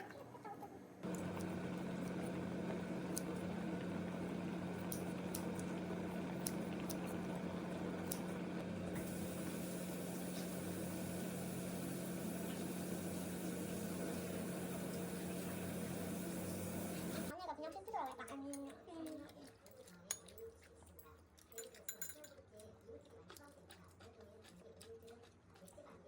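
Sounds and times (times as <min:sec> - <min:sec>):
machine hum: 0:01.0 - 0:17.3
hiss: 0:09.0 - 0:17.3.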